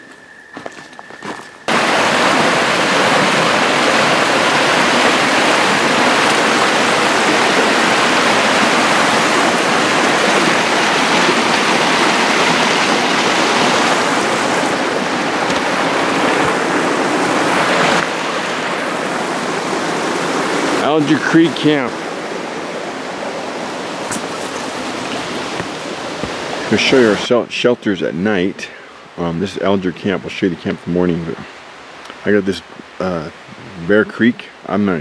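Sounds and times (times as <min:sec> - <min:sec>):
creek water rushing: 0:01.7 - 0:35.0.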